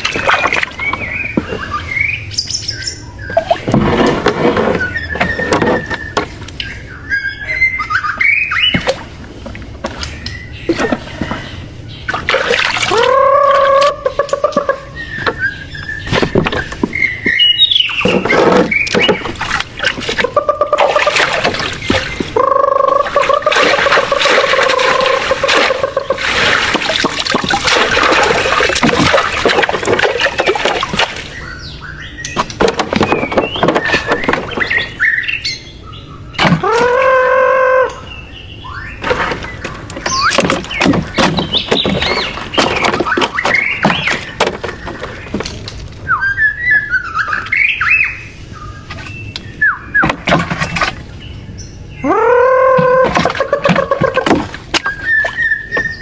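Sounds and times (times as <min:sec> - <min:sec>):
bird calls and chirps: 0:00.0 - 0:56.0
handling clicks and knocks: 0:32.3 - 0:34.9, 0:39.0 - 0:46.0.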